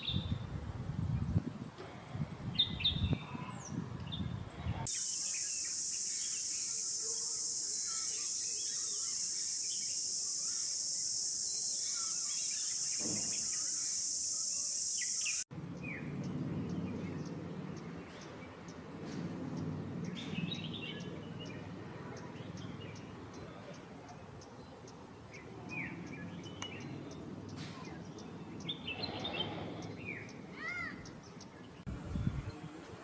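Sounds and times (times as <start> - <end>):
high-pitched insect drone: 4.9 - 15.4.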